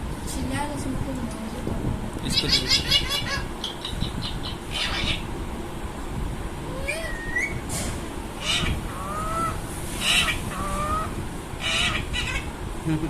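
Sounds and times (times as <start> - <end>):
parrot squawking: 2.3 - 5.3, 6.8 - 7.6, 8.4 - 12.5
parrot whistling rising notes: 6.8 - 7.6, 8.4 - 11.1.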